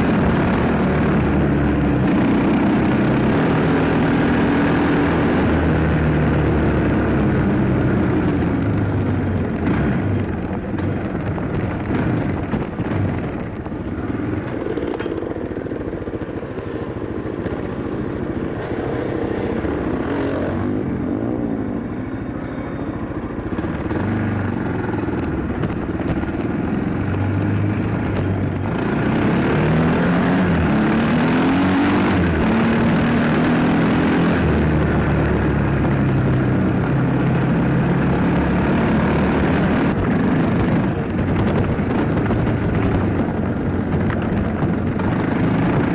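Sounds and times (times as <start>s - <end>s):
dirt bike engine revving: 16.1s - 21.0s.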